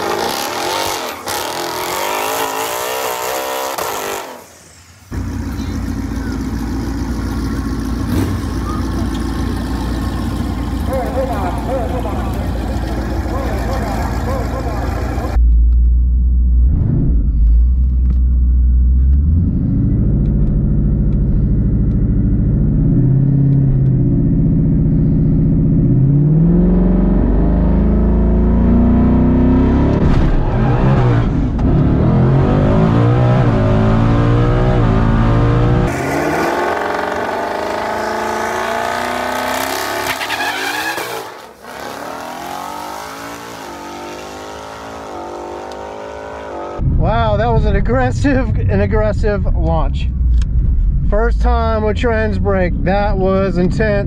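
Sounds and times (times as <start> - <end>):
car engine revving: 0.0 - 15.5, 16.1 - 46.9
car accelerating through gears: 25.6 - 46.8.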